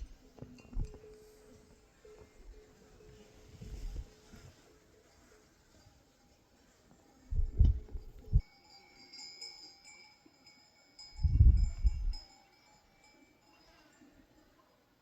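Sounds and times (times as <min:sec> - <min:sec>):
metal sheep bell ringing: 0:05.0 - 0:15.0.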